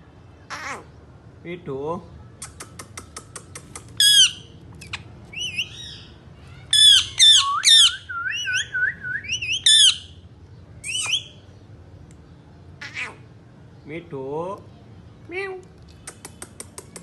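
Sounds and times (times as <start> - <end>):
parrot squawking: 0.5 - 1.0, 3.6 - 10.2, 10.8 - 11.4, 12.8 - 13.3
parrot clicks: 15.8 - 17.0.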